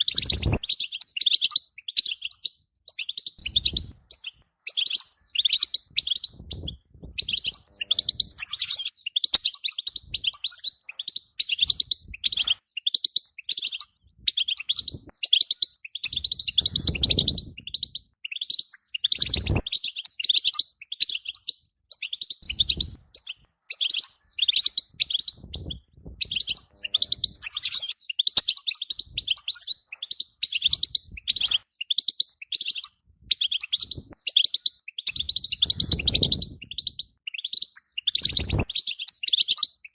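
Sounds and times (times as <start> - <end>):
goldfinch twittering song: 0.0 - 39.9.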